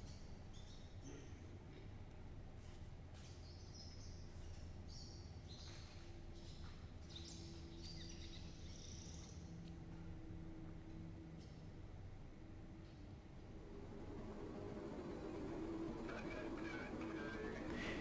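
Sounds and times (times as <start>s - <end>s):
low steady hum: 13.4s - 18.0s.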